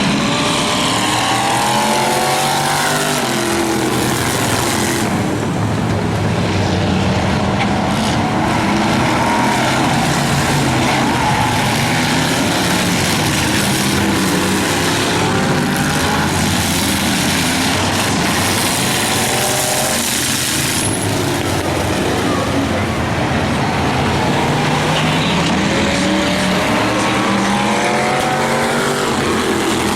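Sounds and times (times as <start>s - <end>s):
race car engines: 0.0s - 29.9s.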